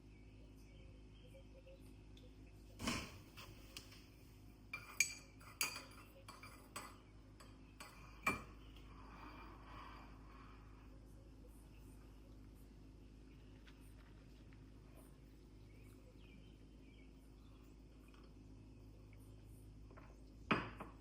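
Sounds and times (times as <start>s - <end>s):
dishes and cutlery clinking: 4.8s - 8.9s.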